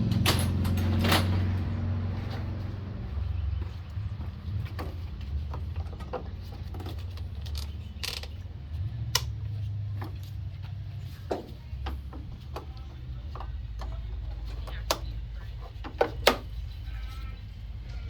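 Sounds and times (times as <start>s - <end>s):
hand tools clinking on metal: 0.0s - 1.6s.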